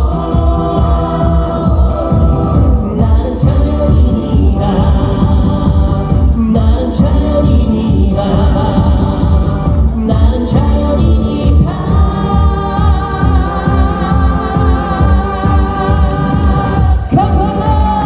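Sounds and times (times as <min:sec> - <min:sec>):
steady drum beat: 0:00.0 - 0:18.0
man singing with band: 0:16.8 - 0:18.0.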